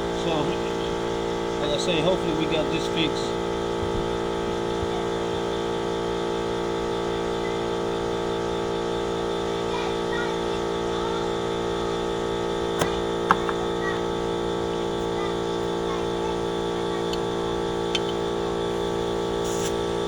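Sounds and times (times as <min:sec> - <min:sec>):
air compressor motor running: 0:00.0 - 0:20.0.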